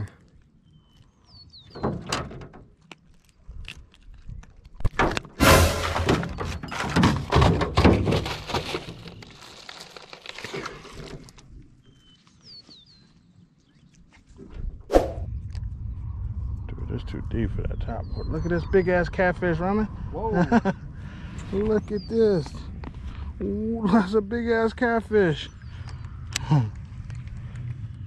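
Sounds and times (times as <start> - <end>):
clattering and rustling: 4.9 - 11.5.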